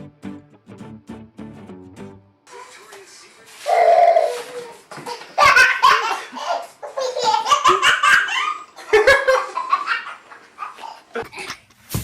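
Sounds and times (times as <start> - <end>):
baby laughing: 3.6 - 11.7.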